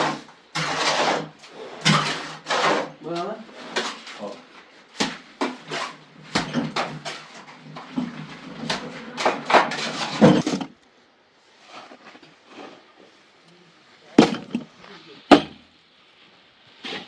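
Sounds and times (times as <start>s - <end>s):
hard objects knocking and clattering: 5.0s - 10.8s, 14.2s - 15.6s.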